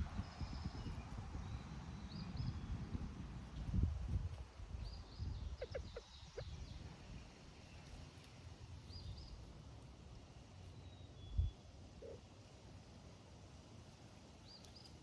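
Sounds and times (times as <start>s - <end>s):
faint bird chirps: 10.8s - 12.2s.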